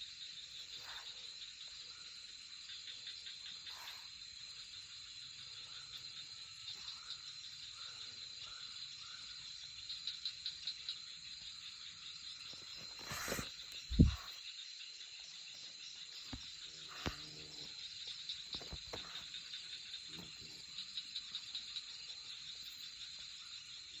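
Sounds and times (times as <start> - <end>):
insects chirring: 0.0 - 24.0
knocks and rustles: 18.5 - 19.2.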